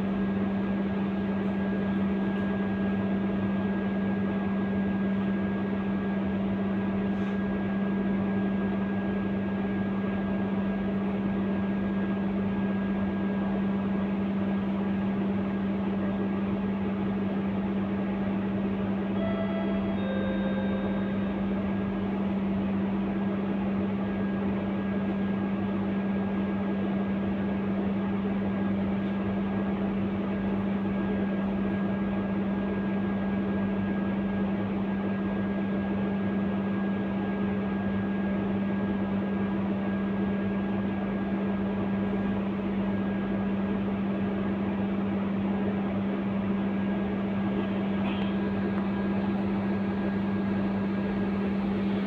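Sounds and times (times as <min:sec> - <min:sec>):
bus interior drone: 0:13.3 - 0:25.7, 0:46.6 - 0:52.0.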